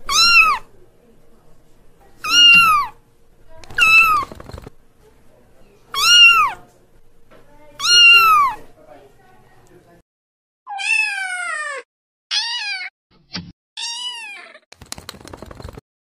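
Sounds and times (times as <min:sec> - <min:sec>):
kitten meowing: 0:00.1 - 0:00.6, 0:02.2 - 0:03.0, 0:03.7 - 0:04.4, 0:06.0 - 0:06.6, 0:07.8 - 0:08.6, 0:10.7 - 0:12.9, 0:13.8 - 0:14.6.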